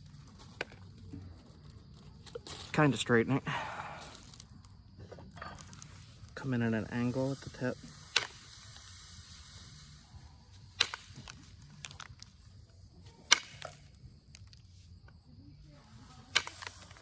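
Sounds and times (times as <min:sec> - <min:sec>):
small ticks and scraping: 0:00.0 - 0:03.2, 0:03.9 - 0:17.0
stone flakes snapping: 0:07.4 - 0:09.0, 0:10.8 - 0:12.3, 0:13.3 - 0:13.8, 0:16.3 - 0:17.0.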